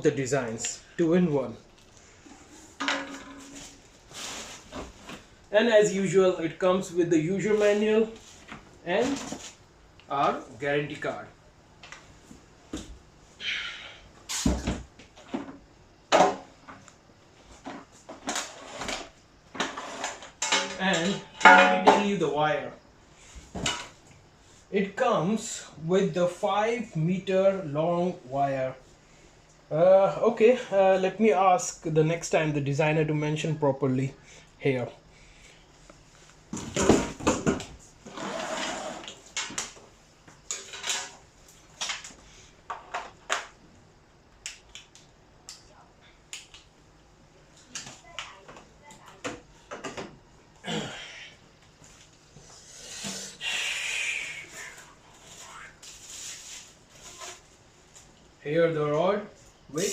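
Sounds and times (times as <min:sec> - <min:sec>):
rustle: 0:54.6 - 0:58.1.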